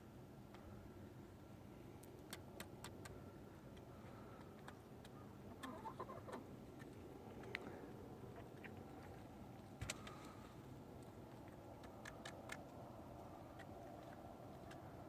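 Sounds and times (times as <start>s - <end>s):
chickens clucking softly: 2.3s - 9.3s.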